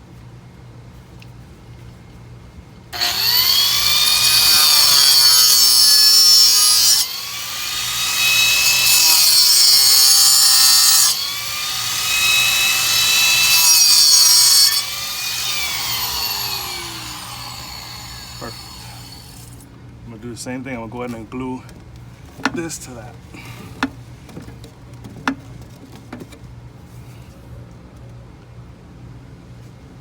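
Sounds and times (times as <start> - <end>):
power tool cutting plastic pipe: 3.0 - 19.5.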